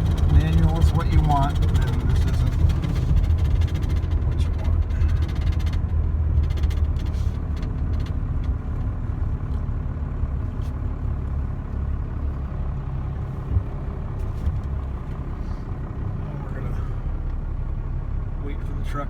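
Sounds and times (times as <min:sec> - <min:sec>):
light clicks and rattles: 0:00.0 - 0:09.8
diesel engine rumbling: 0:00.0 - 0:19.0.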